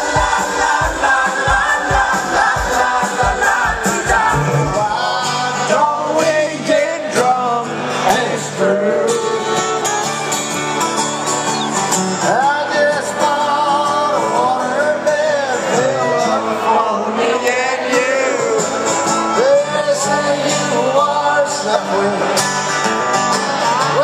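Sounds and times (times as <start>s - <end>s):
live rock band with singing: 0.0s - 24.0s.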